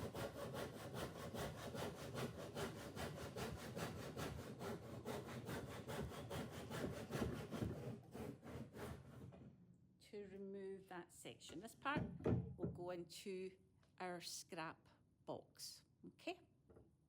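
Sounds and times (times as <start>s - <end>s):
hand saw cutting wood: 0.0s - 9.5s.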